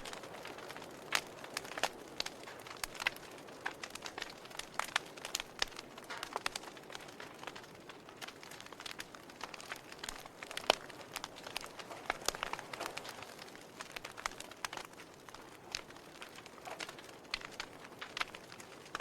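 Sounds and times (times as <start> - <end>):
campfire crackling and popping: 0.0 - 19.0
faint steady hiss: 0.0 - 19.0.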